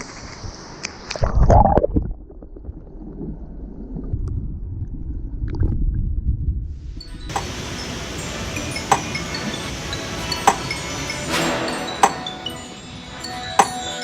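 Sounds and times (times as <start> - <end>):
low rumble of moving water: 0.0 - 7.1
underwater gurgling: 1.1 - 5.8.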